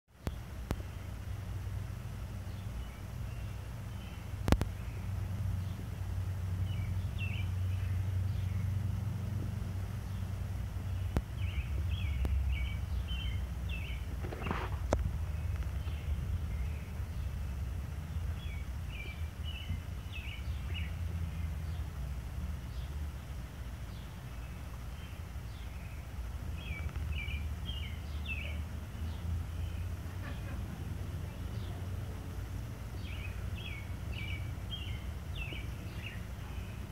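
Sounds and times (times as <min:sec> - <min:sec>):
small bird chirping: 0:00.2 - 0:08.9, 0:09.7 - 0:36.9
low rumble: 0:00.3 - 0:36.9.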